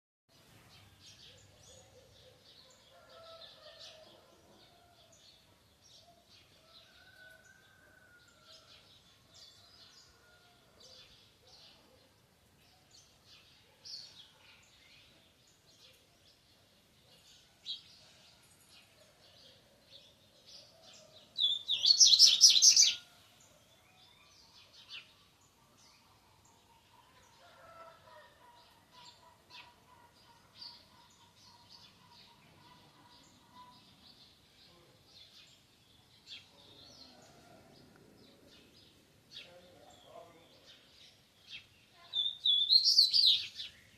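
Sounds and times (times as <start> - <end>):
songbird chirping song: 0.3 - 43.9.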